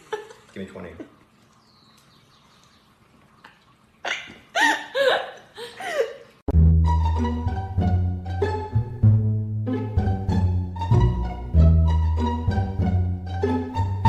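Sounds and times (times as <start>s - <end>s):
plucked string music: 6.5s - 14.0s.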